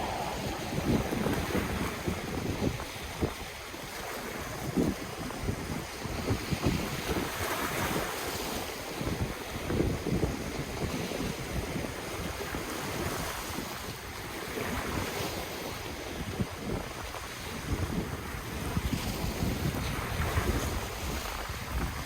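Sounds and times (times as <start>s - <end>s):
ocean waves breaking: 0.0s - 22.0s
wind buffeting microphone: 0.0s - 22.0s.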